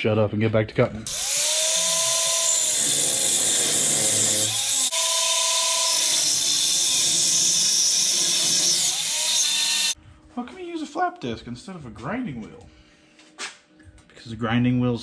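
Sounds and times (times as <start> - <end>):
angle grinder cutting steel: 1.1 - 10.0.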